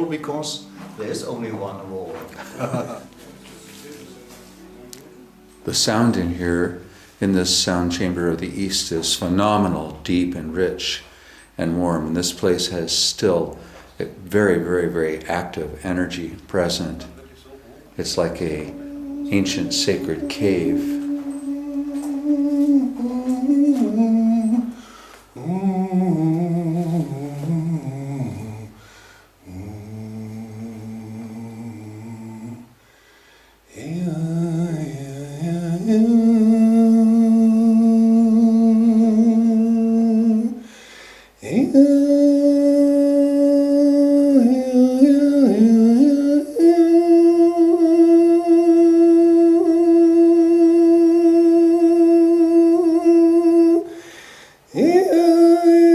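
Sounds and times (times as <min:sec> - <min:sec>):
person humming and singing held notes: 0:17.9 - 0:32.8, 0:33.7 - 0:40.7, 0:41.4 - 0:54.0.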